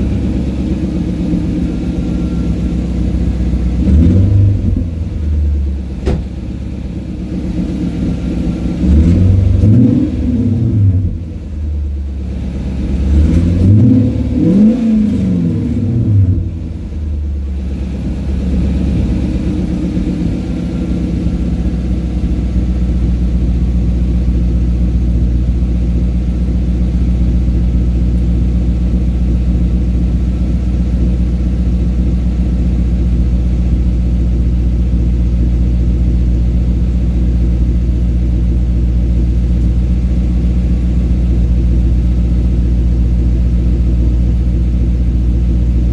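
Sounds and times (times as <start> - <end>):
car engine revving: 0.0 - 25.3
exhaust low rumble: 0.0 - 45.9.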